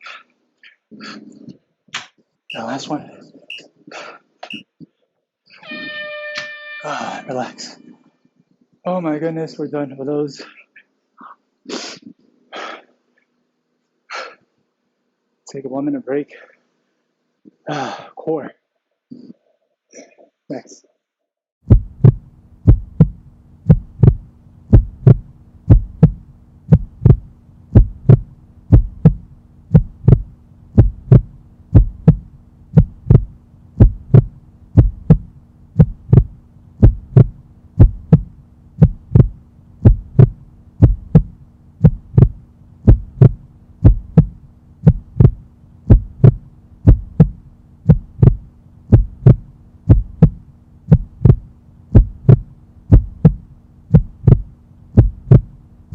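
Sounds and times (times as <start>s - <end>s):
heartbeat thumping: 21.6s - 55.6s
low steady hum: 21.7s - 55.9s.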